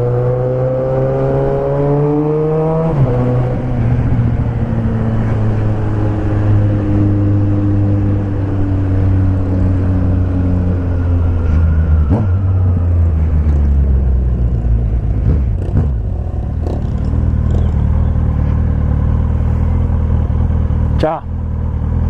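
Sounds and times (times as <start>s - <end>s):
motorcycle engine running: 14.7s - 22.0s.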